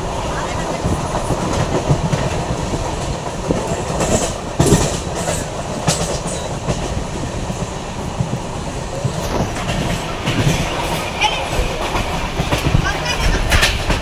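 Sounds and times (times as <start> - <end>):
train wheels clattering on rail: 0.0 - 14.0.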